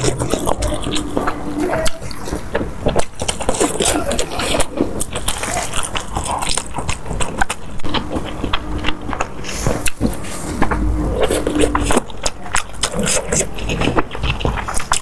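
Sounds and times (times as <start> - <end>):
crisp crunching and chewing: 0.0 - 15.0.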